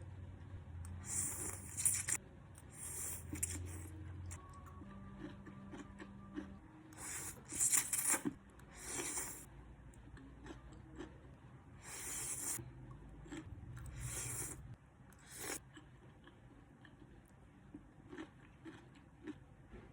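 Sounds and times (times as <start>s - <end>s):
chewing clicks: 15.2s - 19.4s.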